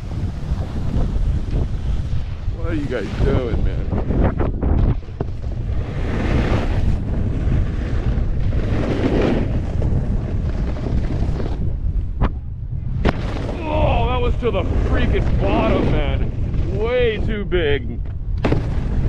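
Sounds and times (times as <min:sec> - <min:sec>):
snowboard scraping over snow: 0:00.0 - 0:12.3, 0:12.9 - 0:19.0
wind buffeting microphone: 0:00.0 - 0:19.0
snowboard landing knock: 0:13.0 - 0:13.6, 0:18.0 - 0:19.0.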